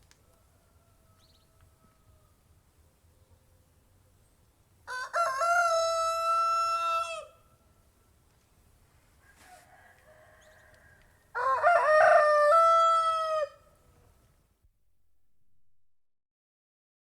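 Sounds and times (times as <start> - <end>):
faint background noise: 0.0 - 14.7
rooster crowing: 0.3 - 2.4, 4.9 - 7.4, 9.2 - 13.8.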